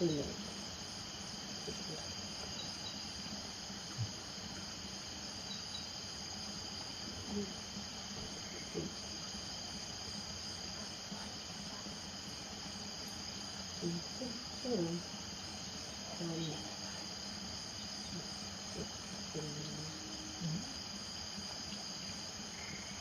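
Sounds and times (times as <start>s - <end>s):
crickets trilling: 0.0s - 23.0s
low frog calls: 17.8s - 21.0s.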